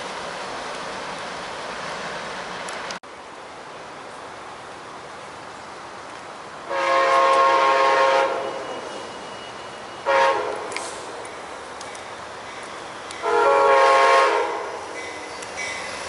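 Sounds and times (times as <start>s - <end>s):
locomotive air horn: 6.7s - 9.2s, 10.0s - 11.1s, 13.2s - 14.8s.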